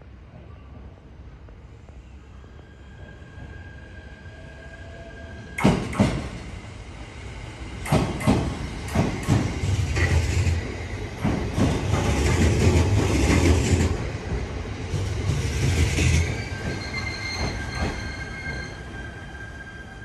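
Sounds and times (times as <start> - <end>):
train rumble: 4.5 - 19.6
train wheels knocking on rail joints: 5.6 - 6.5, 7.8 - 18.0.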